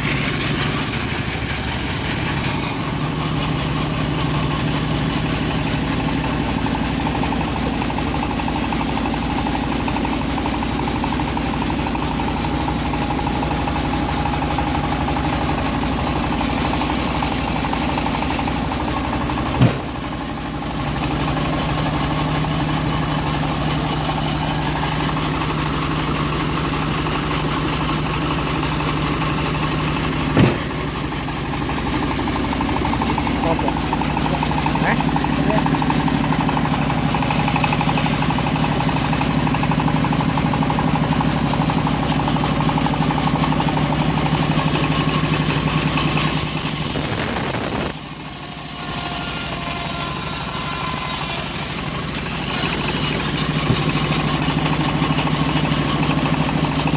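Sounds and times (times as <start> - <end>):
sawmill engine humming: 0.0 - 56.9
sharp knocks: 19.5 - 20.2, 30.3 - 31.0.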